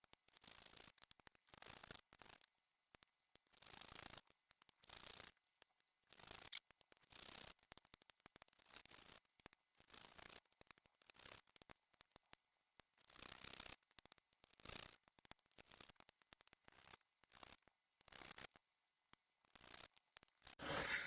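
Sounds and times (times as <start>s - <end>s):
file rasping across metal frets: 20.6s - 21.0s.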